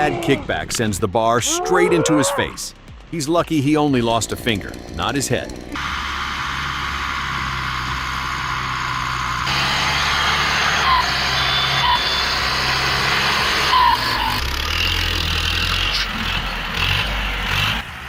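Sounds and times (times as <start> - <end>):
truck engine running: 2.6 - 18.0
short high squeaks: 10.7 - 12.6.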